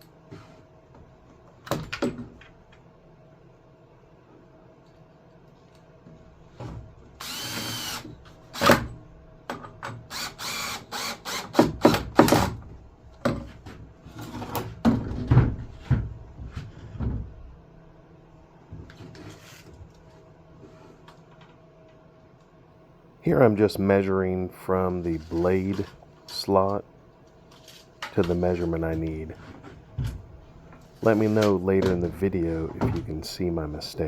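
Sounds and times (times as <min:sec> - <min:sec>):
power drill running: 0:07.2 - 0:08.1, 0:10.1 - 0:11.6.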